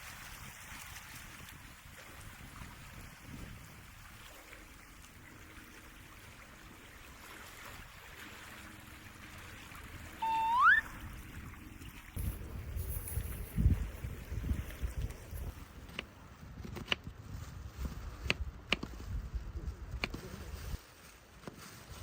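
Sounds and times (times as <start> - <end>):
waves washing on shore: 0.0 - 12.1
rising whistle-like note: 10.2 - 11.0.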